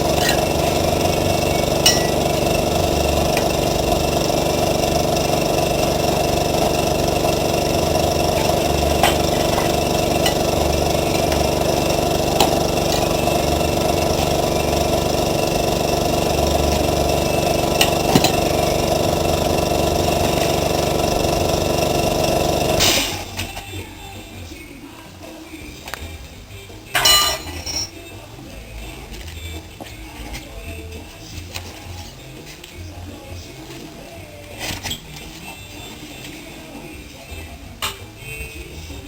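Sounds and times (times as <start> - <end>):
small motor running: 0.0 - 23.6.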